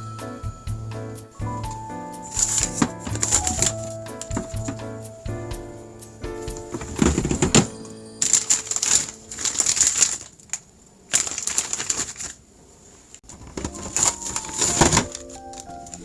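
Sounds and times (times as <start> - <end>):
soft background music: 0.0 - 9.9, 13.6 - 16.0
plastic packaging rustling and clicking: 8.3 - 12.4, 13.3 - 16.0.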